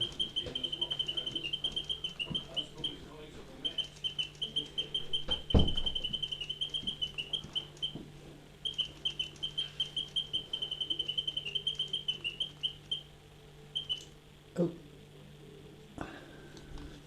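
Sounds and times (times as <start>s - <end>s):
mechanical singing bird trilling: 0.0s - 3.0s, 3.6s - 8.0s, 8.6s - 13.1s, 13.8s - 14.1s.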